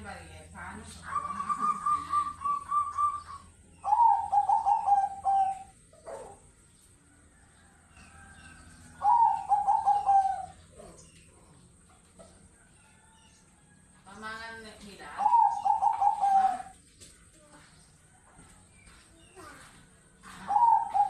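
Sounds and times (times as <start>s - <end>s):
doves cooing: 0.8s - 17.1s, 20.1s - 21.0s.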